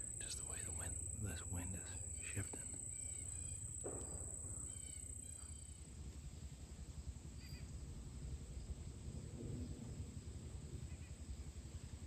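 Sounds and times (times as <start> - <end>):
high insect trill: 0.0 - 5.9
faint bird chirps: 0.0 - 6.0, 7.3 - 7.9
wind rumble on microphone: 5.8 - 12.0.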